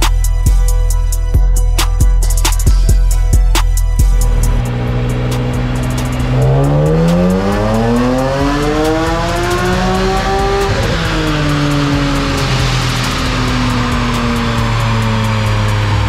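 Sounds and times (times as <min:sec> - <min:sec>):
car engine revving: 0:01.8 - 0:16.0.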